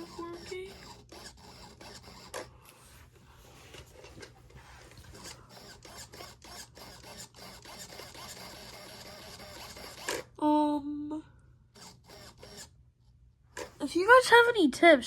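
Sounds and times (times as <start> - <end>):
servo whirring and clicking: 0.0 - 2.6, 3.8 - 10.4, 11.7 - 12.8, 13.6 - 13.8.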